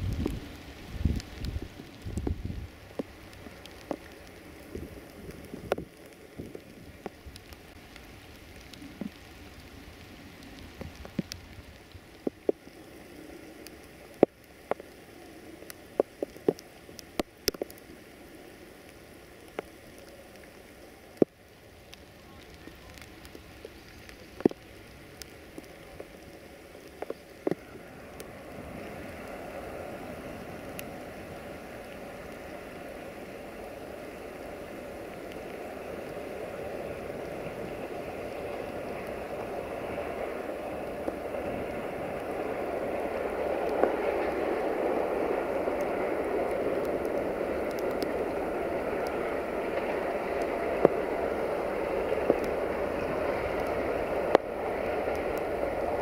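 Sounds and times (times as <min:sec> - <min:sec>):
rain drops tapping: 0:00.0 - 0:56.0
steady rain: 0:00.0 - 0:56.0
freight train rumble: 0:27.4 - 0:56.0.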